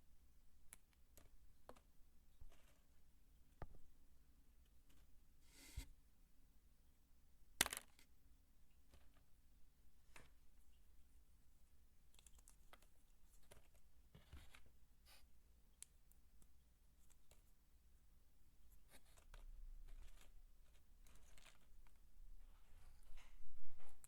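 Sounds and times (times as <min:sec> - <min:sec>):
dry soap clicking and crackling: 0:00.6 - 0:04.0, 0:11.7 - 0:22.6.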